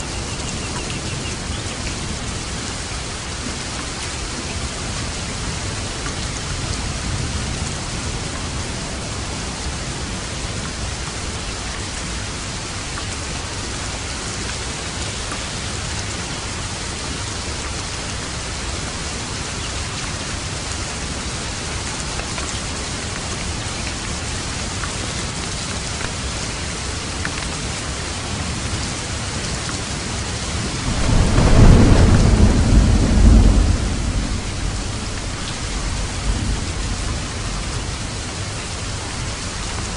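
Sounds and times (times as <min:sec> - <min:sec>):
heavy rain falling: 0:00.0 - 0:39.9
thunder rumbling: 0:30.4 - 0:39.9.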